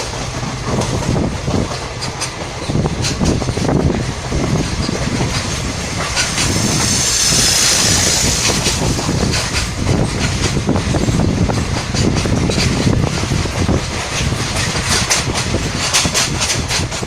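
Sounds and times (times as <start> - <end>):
train rumble and wheel clatter: 0.0 - 17.0
hiss: 5.9 - 9.7.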